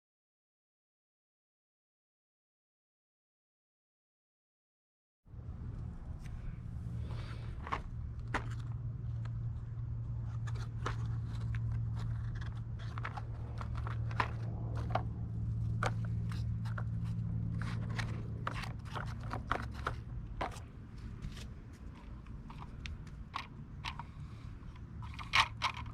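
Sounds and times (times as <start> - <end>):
low hum: 5.3 - 25.9
small clicks and crunches: 7.1 - 25.9.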